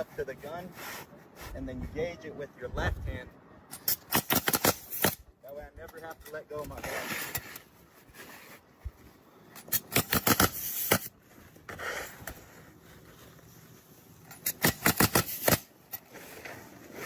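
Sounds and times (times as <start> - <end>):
nail gun firing into shingles: 3.7 - 5.3, 9.6 - 12.4, 14.3 - 16.1.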